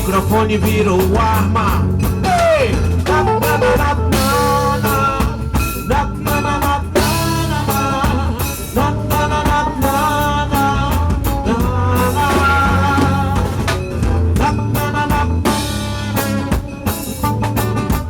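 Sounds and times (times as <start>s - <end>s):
bass guitar: 0.0s - 18.0s
drum kit: 0.0s - 18.0s
live band playing: 0.0s - 18.0s
gliding melody line: 3.0s - 5.2s.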